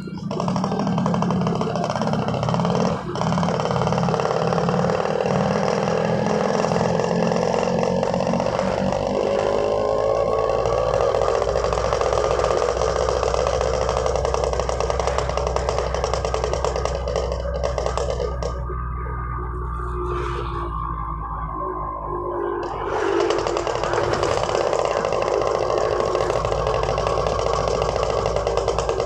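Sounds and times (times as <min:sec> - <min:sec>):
two-stroke motorcycle engine: 0:00.0 - 0:20.0, 0:22.0 - 0:29.0.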